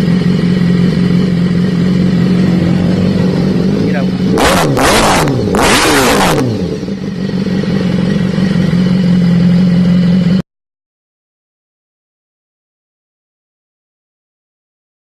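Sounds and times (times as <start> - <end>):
motorcycle engine revving and idling: 0.0 - 10.4.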